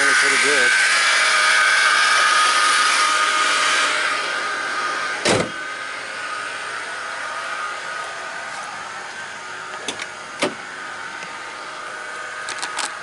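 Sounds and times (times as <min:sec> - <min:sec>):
car engine running: 0:00.0 - 0:13.0
sharp thump: 0:05.2 - 0:05.6.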